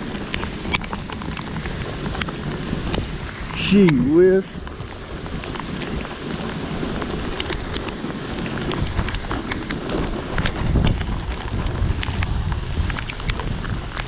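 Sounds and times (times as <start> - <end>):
heavy rain hitting camera: 0.0 - 14.0
wind rumbling on microphone: 0.0 - 14.0.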